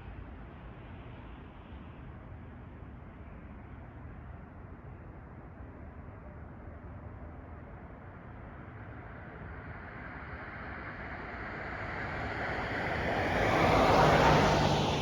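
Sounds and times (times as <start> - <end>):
vehicle passing on road: 9.7 - 15.0.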